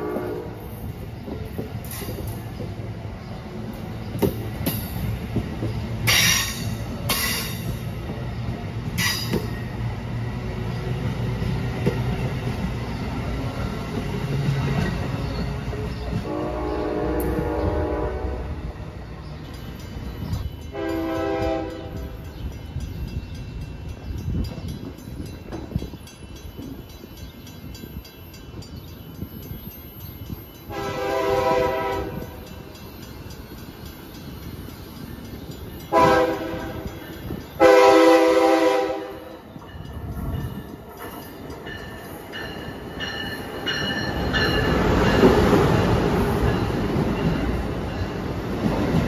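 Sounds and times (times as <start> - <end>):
train horn blasts: 0.0 - 0.8, 16.2 - 18.8, 20.7 - 22.2, 30.7 - 32.4, 35.9 - 36.9, 37.6 - 39.4
train wheels rumbling on rails: 0.0 - 49.0.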